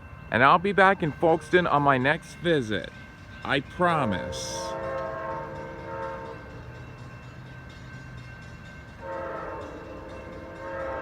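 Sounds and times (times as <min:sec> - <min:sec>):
train low rumble: 0:00.0 - 0:11.0
train horn blasts: 0:04.2 - 0:06.6, 0:09.0 - 0:11.0.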